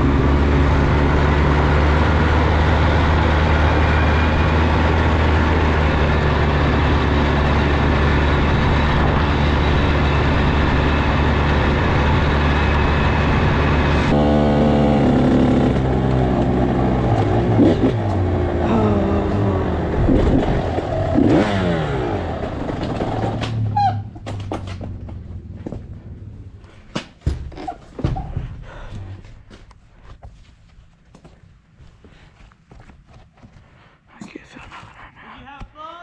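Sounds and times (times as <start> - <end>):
small engine running loudly: 0.0 - 23.7.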